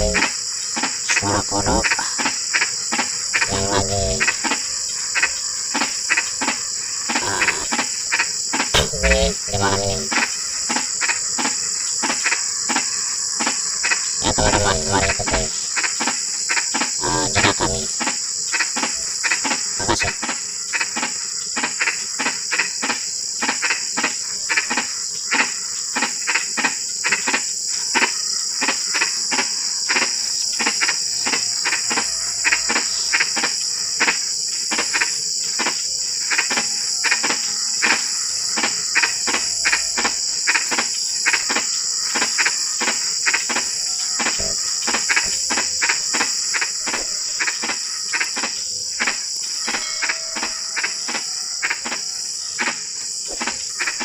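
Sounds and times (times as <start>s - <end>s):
frogs croaking: 0.0s - 54.0s.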